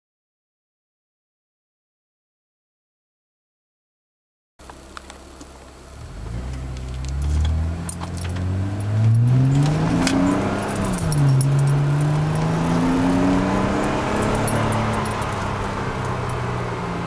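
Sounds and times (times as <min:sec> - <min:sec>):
car engine revving: 0:04.6 - 0:17.0.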